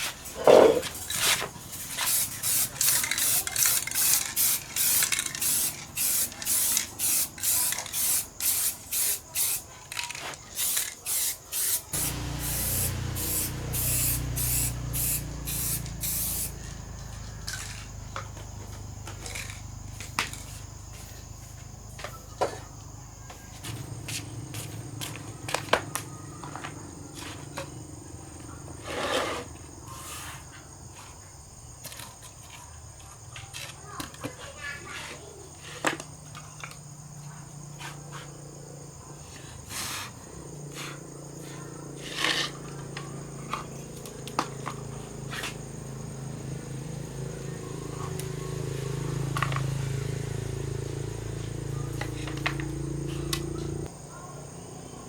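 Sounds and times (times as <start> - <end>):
spray can hissing: 1.0 - 16.8.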